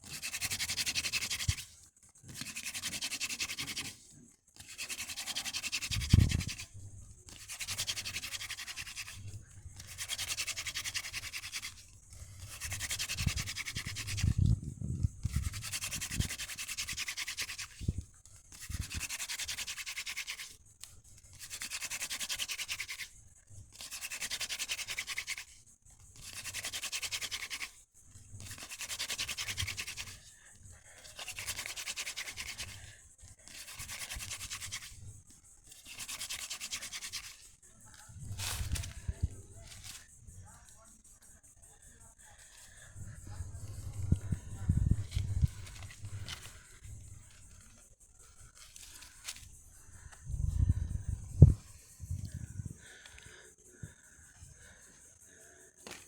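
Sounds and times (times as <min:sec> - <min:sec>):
wooden spindle grinding on wood: 0:00.0 - 0:40.8, 0:41.8 - 0:52.0.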